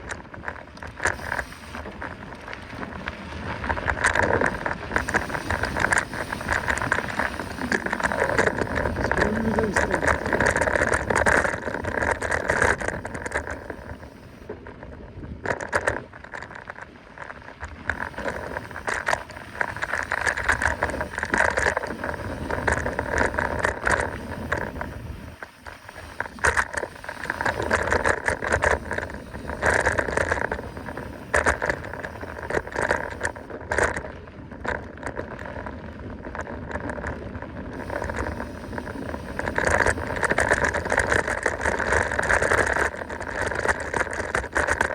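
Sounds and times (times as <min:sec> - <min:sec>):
bike frame and chain rattling: 0:00.0 - 0:14.6, 0:15.4 - 0:44.9
bike tyres rolling on dirt: 0:00.0 - 0:44.9.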